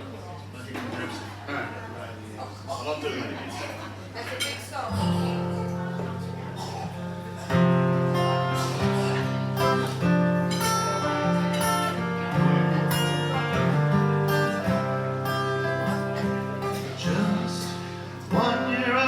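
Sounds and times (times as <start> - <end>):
acoustic guitar strumming: 4.9 - 19.0.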